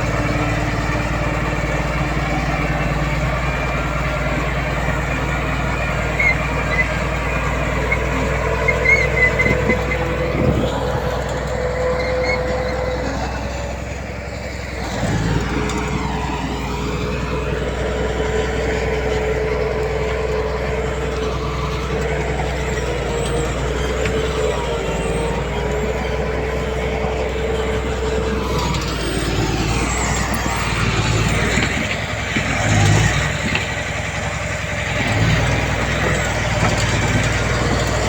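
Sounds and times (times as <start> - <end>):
heavy diesel machinery running: 0.0 - 38.0
short high squeaks: 6.0 - 13.3.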